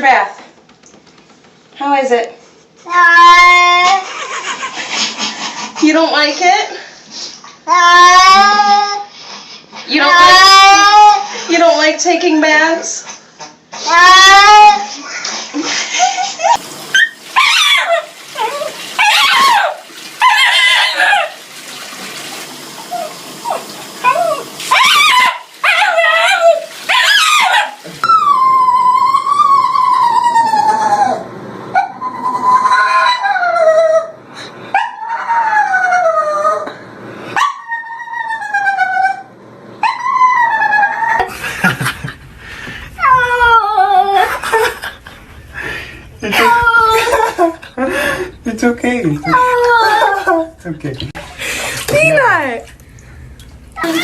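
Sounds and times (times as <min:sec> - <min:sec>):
dog whining and howling: 0:02.9 - 0:04.1, 0:07.7 - 0:09.1, 0:09.9 - 0:11.3, 0:13.8 - 0:15.1, 0:16.4 - 0:21.4, 0:22.9 - 0:36.8, 0:37.4 - 0:41.2, 0:43.0 - 0:44.6, 0:46.3 - 0:47.7, 0:49.2 - 0:50.5
running bath water: 0:13.9 - 0:31.2, 0:40.4 - 0:54.0.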